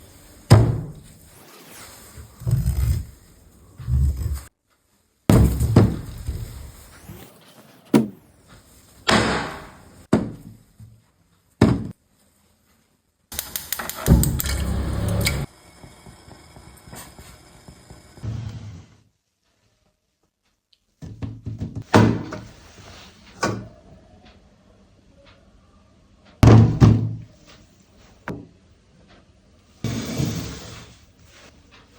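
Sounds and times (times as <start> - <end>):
dull thunks: 5.3 - 6.6.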